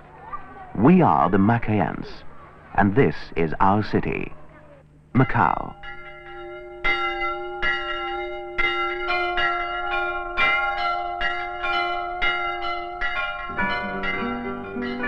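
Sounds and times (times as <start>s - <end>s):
bells ringing: 5.2s - 15.0s
guitar music: 13.5s - 15.0s.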